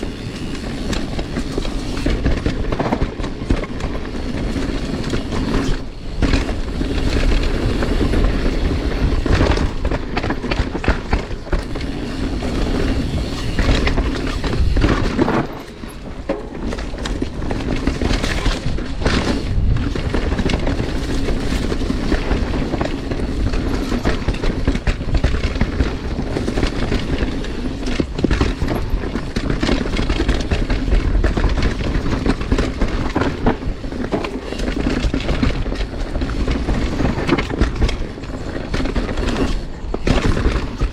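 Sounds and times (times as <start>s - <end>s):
bike tyres rumbling on dirt: 0.0s - 40.9s.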